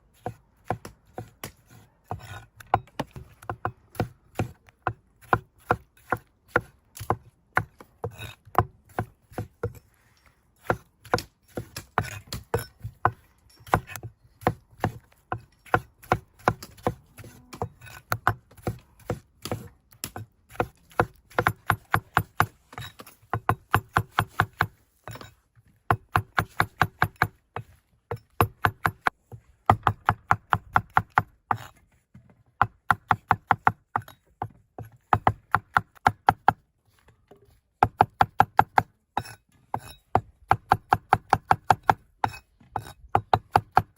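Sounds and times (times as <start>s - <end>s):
knife chopping on cutting board: 0.2s - 9.8s, 10.6s - 22.5s.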